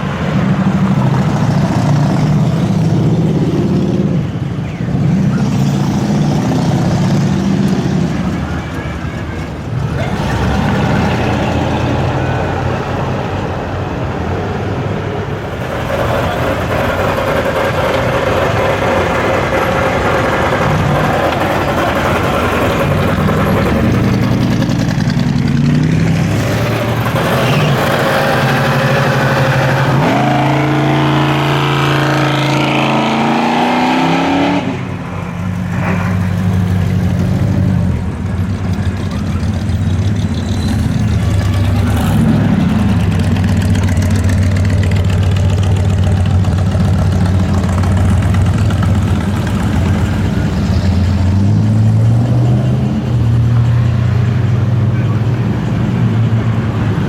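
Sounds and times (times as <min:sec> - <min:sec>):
car engines rumbling past: 0:00.0 - 0:57.0
car engine revving: 0:15.4 - 0:57.0.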